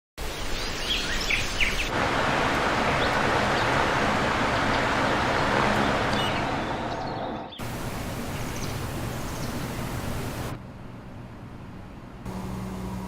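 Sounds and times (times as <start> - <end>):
birds chirping: 0.2 - 10.5
steady rushing noise: 1.9 - 10.6.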